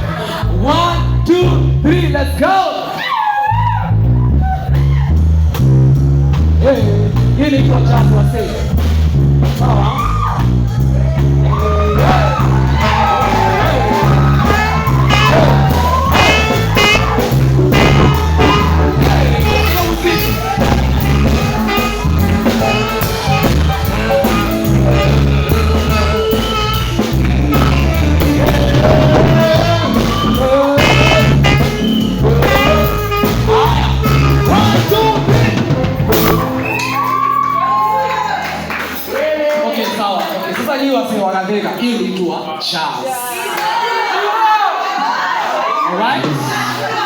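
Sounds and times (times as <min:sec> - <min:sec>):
bass line: 0:00.0 - 0:02.7, 0:03.4 - 0:39.7
drum kit: 0:04.6 - 0:39.7
wavering lead melody: 0:11.2 - 0:39.3.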